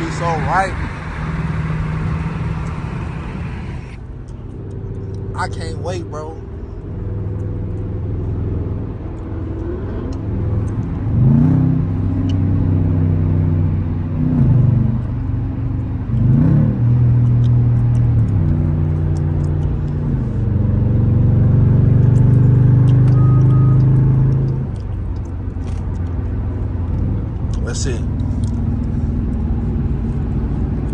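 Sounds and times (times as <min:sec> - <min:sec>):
car engine revving: 0:00.0 - 0:04.3.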